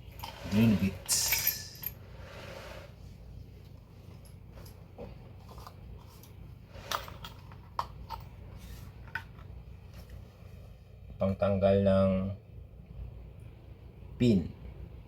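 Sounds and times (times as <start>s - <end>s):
hand tools rustling: 0.0s - 3.0s, 4.0s - 10.2s
faint steady hum: 0.0s - 15.0s.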